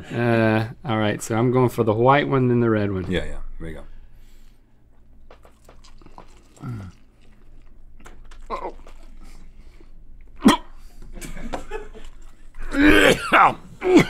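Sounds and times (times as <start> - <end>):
people chewing wetly: 4.9 - 11.1
person coughing: 10.4 - 11.6, 12.6 - 14.0.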